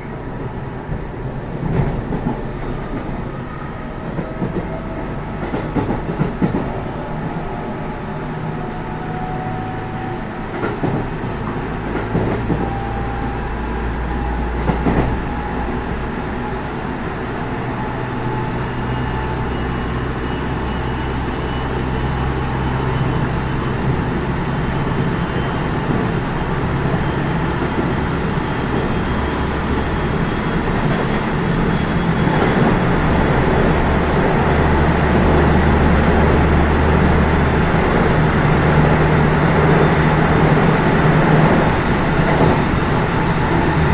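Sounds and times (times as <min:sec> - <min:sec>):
rail joint clicks: 0:00.0 - 0:07.4, 0:09.7 - 0:13.4, 0:14.0 - 0:15.8, 0:24.7 - 0:34.4, 0:38.9 - 0:43.9
wheel and track rumble: 0:00.0 - 0:43.9.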